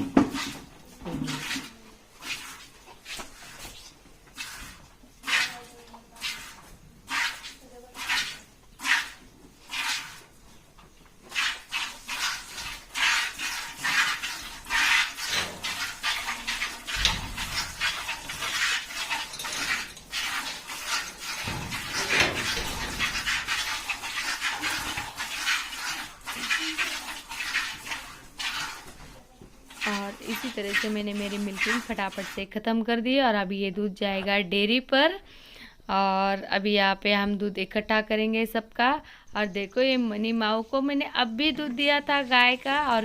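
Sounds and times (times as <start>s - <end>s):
milk squirting into pail: 0.0s - 10.3s, 11.2s - 32.4s.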